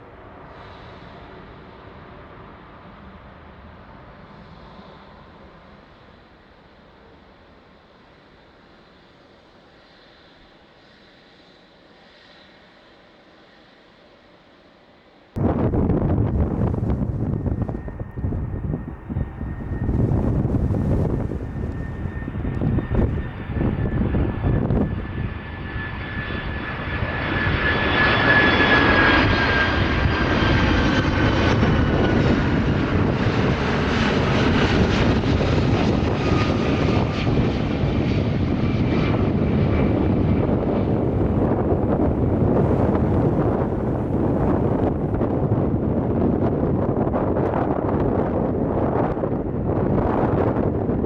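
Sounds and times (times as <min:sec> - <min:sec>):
jet engine whine: 0:00.0 - 0:51.0
deep rumble: 0:15.4 - 0:26.4, 0:29.2 - 0:51.0.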